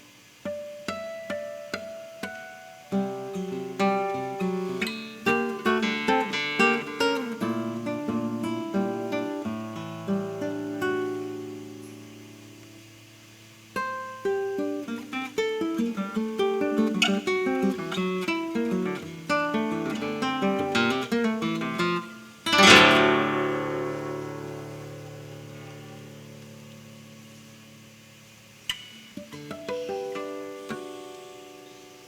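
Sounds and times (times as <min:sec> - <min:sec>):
classical guitar playing: 0:00.0 - 0:32.0.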